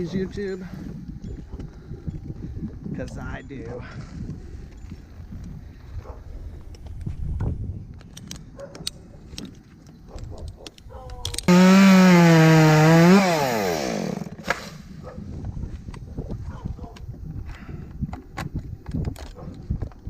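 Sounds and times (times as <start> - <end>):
chainsaw revving: 11.5 - 14.7.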